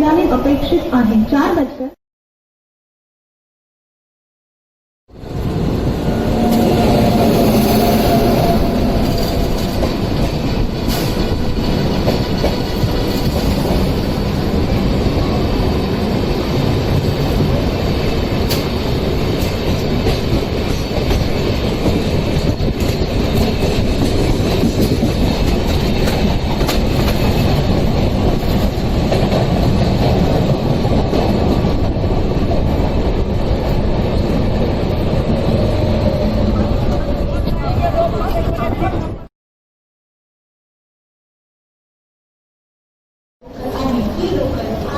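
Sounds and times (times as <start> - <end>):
train wheels rumbling on rails: 5.1 - 39.3
held tone: 5.9 - 9.9.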